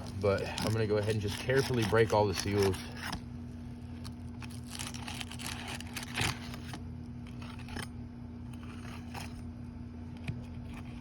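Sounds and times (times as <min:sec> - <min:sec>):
pry tool scraping shingles: 0:00.0 - 0:03.2.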